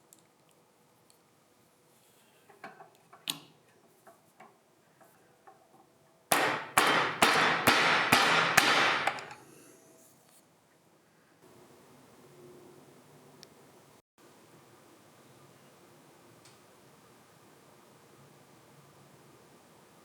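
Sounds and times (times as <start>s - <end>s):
sharp evenly spaced strikes: 6.3s - 9.3s.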